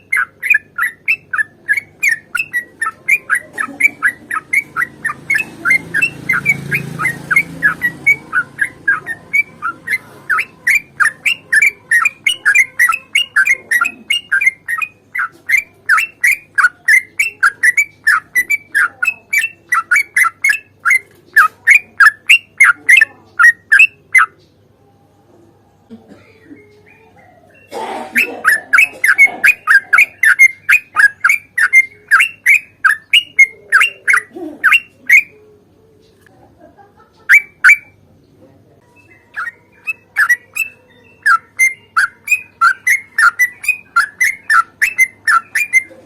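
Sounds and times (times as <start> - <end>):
bird singing falling notes: 38.8 - 46.0.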